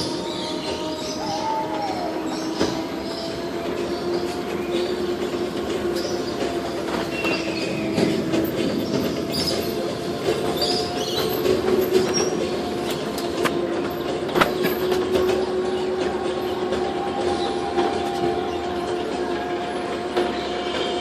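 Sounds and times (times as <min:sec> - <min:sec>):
ride vehicle motor hum: 0:00.0 - 0:21.0
clicks and rattles from running gear: 0:05.6 - 0:15.4.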